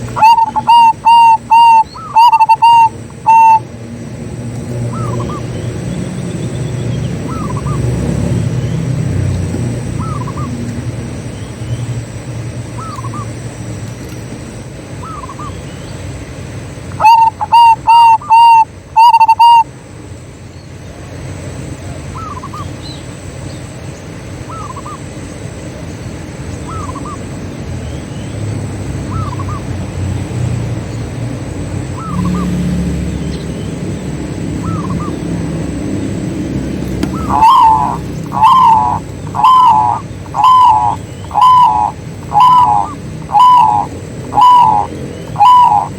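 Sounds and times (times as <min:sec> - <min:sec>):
doves cooing: 0:00.0 - 0:11.3, 0:16.9 - 0:19.7, 0:31.8 - 0:45.9.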